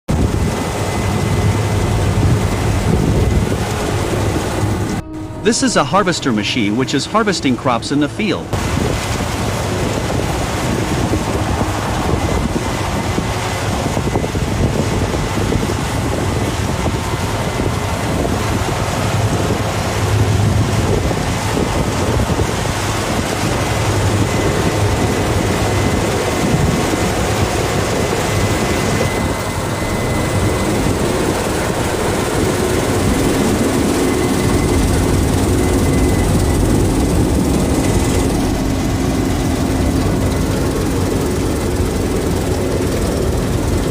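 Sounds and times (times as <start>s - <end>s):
combine harvester drone: 0.1s - 43.9s
faint high whine: 0.7s - 9.2s, 23.2s - 43.6s.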